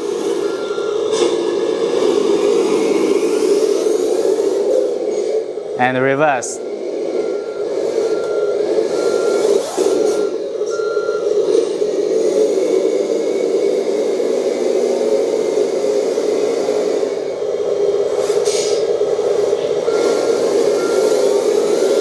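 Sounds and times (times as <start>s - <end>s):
toy truck drive humming: 0.0s - 22.0s
reversing beeper beeps: 0.3s - 1.3s, 6.4s - 11.4s, 19.8s - 22.0s.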